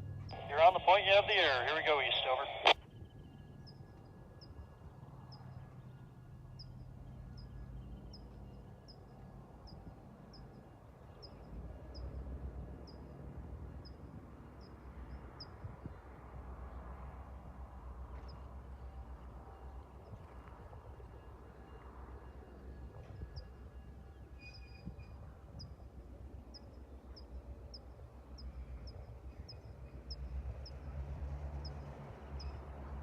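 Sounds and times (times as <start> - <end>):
diesel locomotive engine rumble: 0.0 - 10.3.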